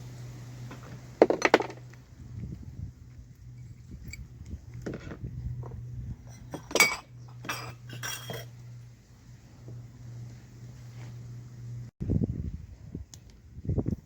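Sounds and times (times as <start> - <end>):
steady low hum: 0.0 - 14.0
utensils clinking against pots: 6.3 - 8.6.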